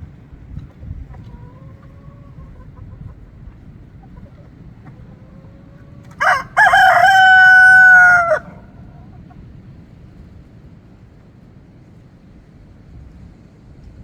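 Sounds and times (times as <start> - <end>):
rooster crowing: 5.8 - 8.9.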